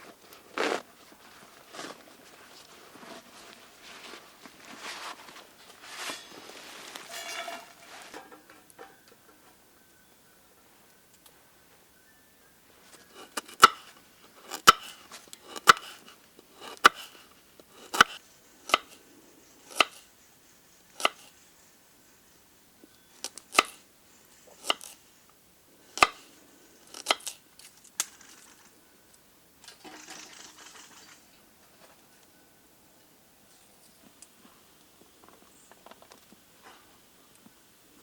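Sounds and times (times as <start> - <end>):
scraping sound: 4.7 - 8.3.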